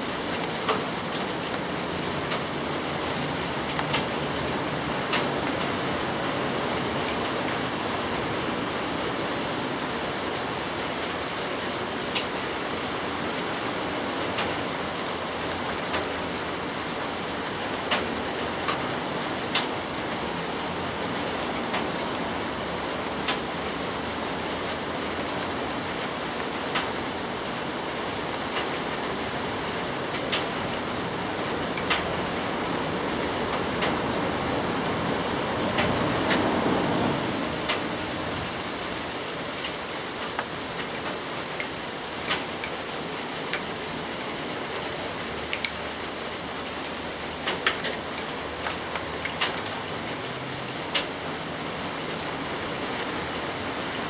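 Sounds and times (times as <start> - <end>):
rain on leaves: 0.0 - 54.0.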